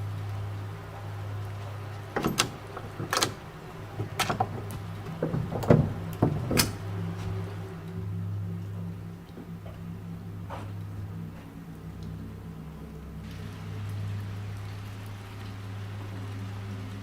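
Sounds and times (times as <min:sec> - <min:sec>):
steady low hum: 0:00.0 - 0:17.0
door handle and latch clicking: 0:02.2 - 0:06.8.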